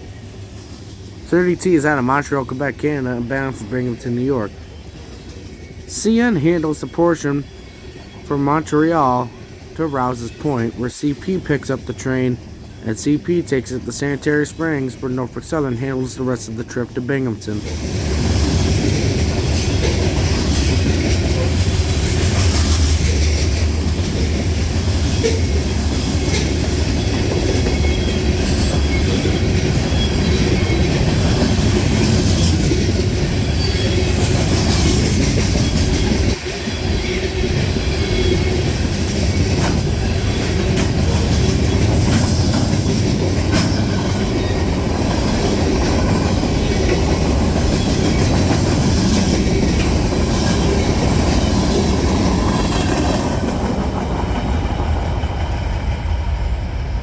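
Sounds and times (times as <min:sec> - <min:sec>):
freight train rumbling past: 0:00.0 - 0:57.0
wheels clacking over rail joints: 0:17.6 - 0:55.6.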